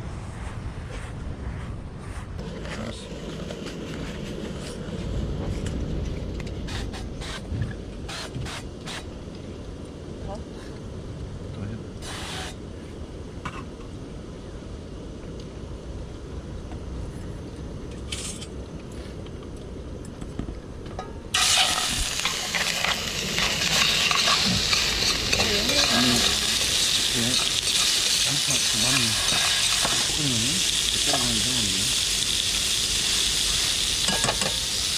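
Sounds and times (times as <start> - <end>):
food sizzling in a pan: 21.4 - 34.9.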